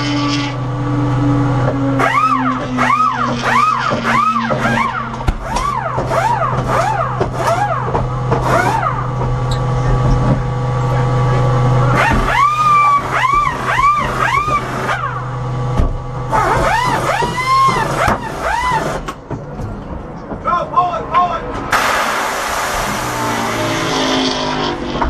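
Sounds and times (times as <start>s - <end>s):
short rising and falling squeals: 0.0s - 7.9s, 12.0s - 15.2s, 16.3s - 19.1s
race car engine idling: 0.0s - 20.4s.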